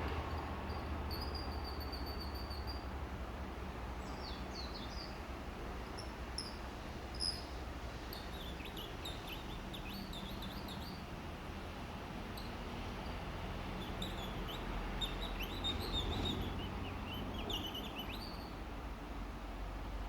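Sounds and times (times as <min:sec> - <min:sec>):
small birds twittering: 0:04.0 - 0:05.3, 0:05.9 - 0:11.2, 0:12.4 - 0:18.6.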